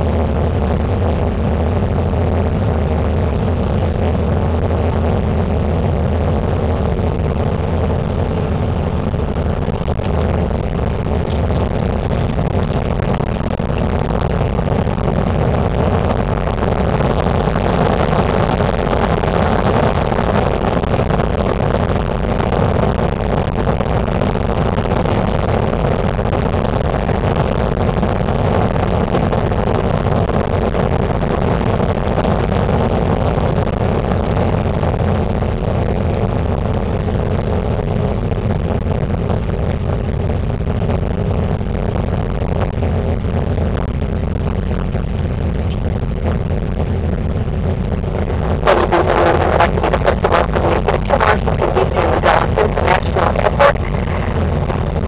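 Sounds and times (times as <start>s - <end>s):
jet airliner cabin noise: 48.1s - 55.0s.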